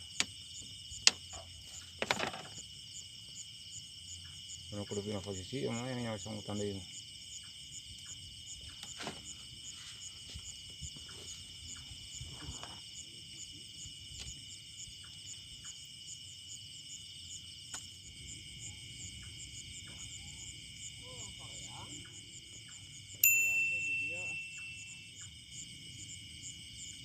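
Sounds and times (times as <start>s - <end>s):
insects trilling: 0.0s - 27.0s
pulsing insect trill: 0.0s - 27.0s.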